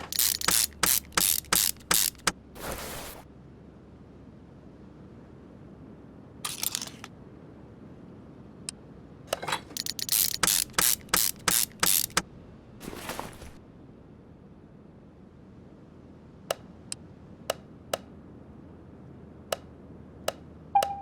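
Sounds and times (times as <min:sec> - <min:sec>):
ratchet wrench clicking: 0:00.0 - 0:02.3, 0:06.5 - 0:07.1, 0:09.4 - 0:12.2.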